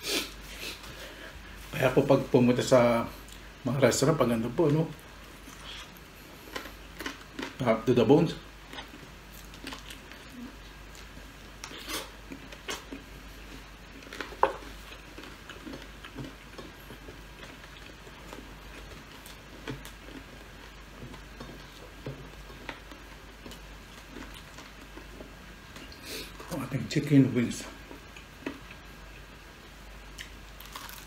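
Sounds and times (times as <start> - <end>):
soft chewing and mouth clicks: 3.2 - 3.5, 5.3 - 7.6, 8.6 - 26.6, 27.7 - 29.4, 30.1 - 31.0.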